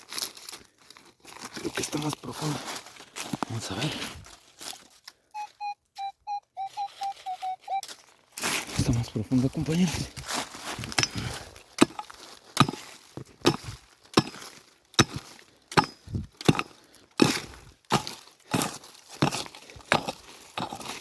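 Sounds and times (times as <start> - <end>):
digging tool striking stony soil: 9.9 - 21.0.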